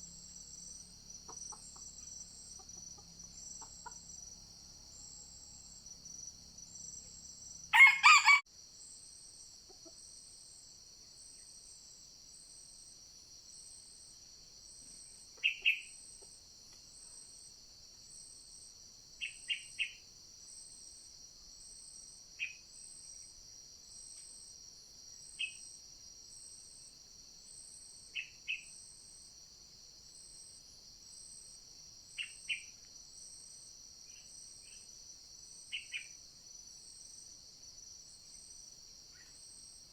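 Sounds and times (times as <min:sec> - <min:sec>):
shrill insect chorus: 0:00.0 - 0:16.3, 0:16.9 - 0:39.9
rooster crowing: 0:07.7 - 0:08.4.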